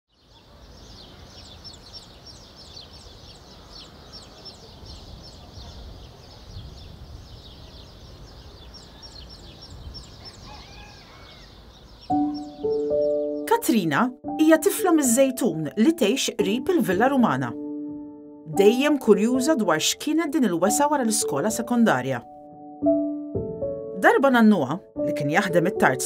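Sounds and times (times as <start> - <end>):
birds chirping: 0.1 - 17.6
lower arching bird calls: 0.8 - 13.5.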